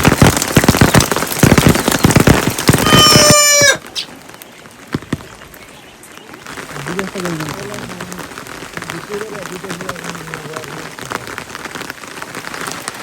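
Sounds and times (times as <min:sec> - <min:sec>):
heavy rain: 0:00.0 - 0:13.0
rooster crowing: 0:02.8 - 0:03.8.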